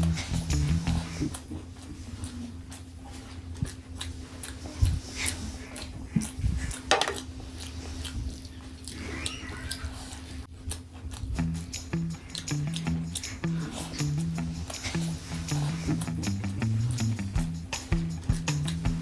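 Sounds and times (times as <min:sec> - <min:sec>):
steady low hum: 0:00.0 - 0:09.0, 0:10.1 - 0:19.0
chewing and mouth noises: 0:00.0 - 0:19.0.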